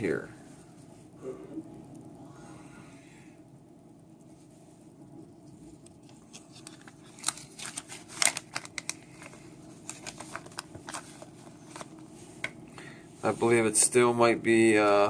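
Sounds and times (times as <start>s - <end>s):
bag crinkling and clicking: 6.0s - 12.5s.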